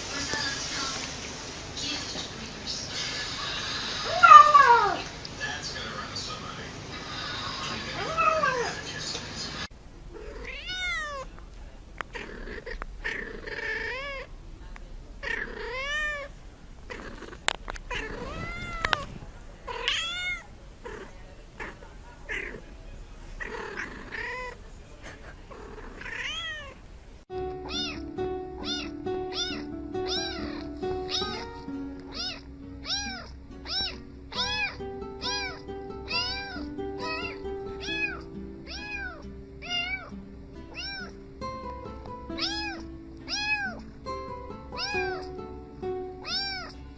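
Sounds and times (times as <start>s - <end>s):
cat meowing: 4.0s - 5.1s, 8.0s - 8.8s, 10.1s - 11.3s, 12.2s - 14.3s, 15.2s - 16.3s, 17.9s - 19.1s, 19.7s - 22.6s, 25.7s - 26.8s, 27.6s - 40.1s, 40.7s - 41.2s, 42.4s - 43.9s, 44.8s - 45.3s, 46.2s - 46.8s
music with steady melody: 27.3s - 46.9s.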